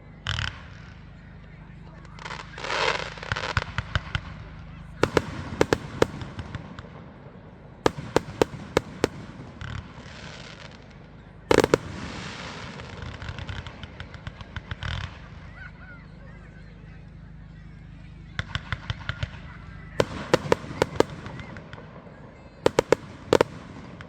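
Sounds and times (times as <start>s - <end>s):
fireworks crackling: 2.0s - 15.5s, 18.4s - 24.0s
fireworks bangs: 2.1s - 15.5s, 18.4s - 24.0s.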